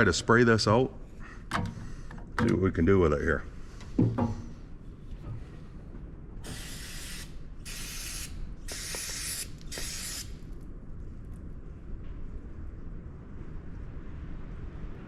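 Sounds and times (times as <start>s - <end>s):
aerosol spray can hissing: 6.4s - 10.4s.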